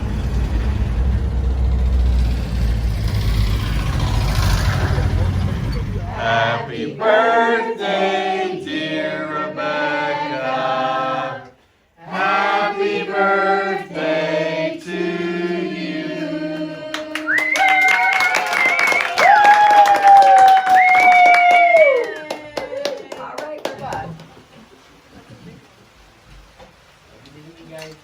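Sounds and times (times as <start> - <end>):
group singing unaccompanied: 3.5 - 17.5.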